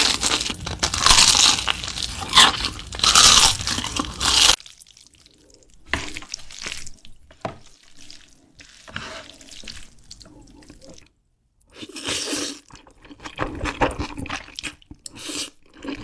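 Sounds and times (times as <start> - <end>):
crunching of crispy food being chewed: 0.0 - 11.1
wet chewing and mouth clicks: 0.0 - 11.1.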